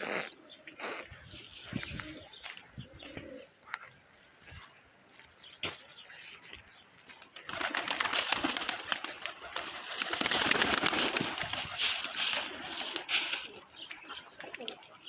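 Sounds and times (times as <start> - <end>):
pigeon calls: 0.0 - 4.0, 7.4 - 15.0
pigeons flapping wings: 7.2 - 13.7.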